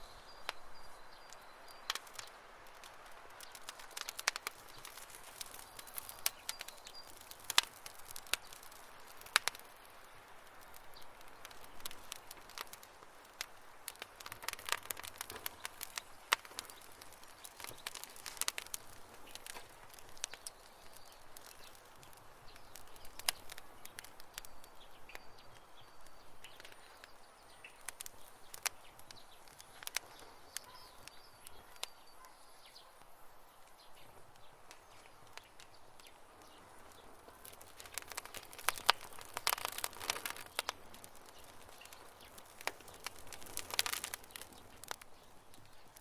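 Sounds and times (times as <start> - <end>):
campfire crackling: 0.0 - 46.0.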